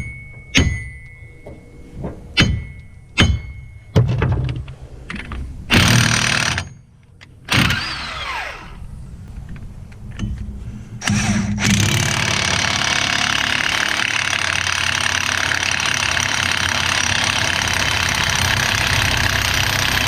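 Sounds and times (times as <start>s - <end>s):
hammer striking metal hub: 0.0s - 1.6s, 2.4s - 3.9s.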